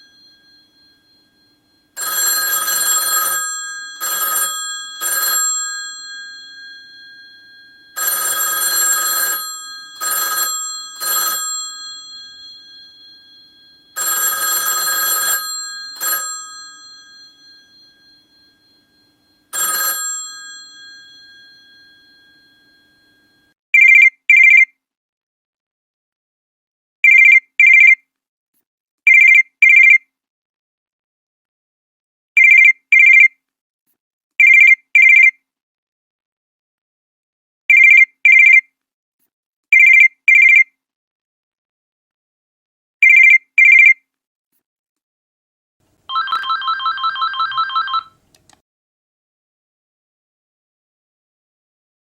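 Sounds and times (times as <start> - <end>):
old telephone bell ringing: 0.0 - 23.6, 46.1 - 48.2
electronic phone ring beeps: 0.0 - 24.6, 46.1 - 48.2.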